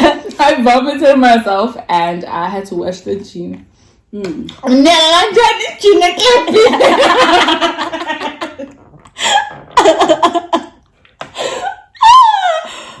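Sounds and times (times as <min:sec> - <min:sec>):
women laughing: 0:06.4 - 0:08.8, 0:09.8 - 0:10.8, 0:11.4 - 0:12.7.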